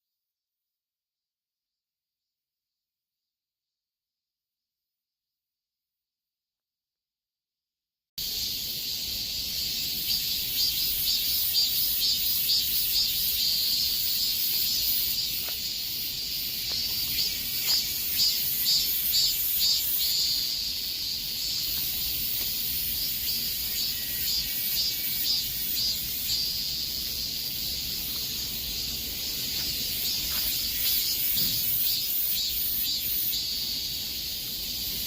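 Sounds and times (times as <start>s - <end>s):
cicadas singing: 8.2s - 35.0s.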